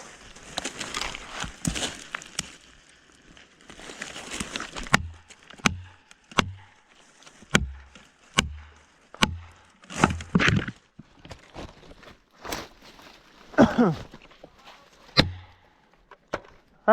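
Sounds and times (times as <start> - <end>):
hard strikes on wood: 4.8 - 6.7, 7.5 - 10.7, 15.2 - 15.6.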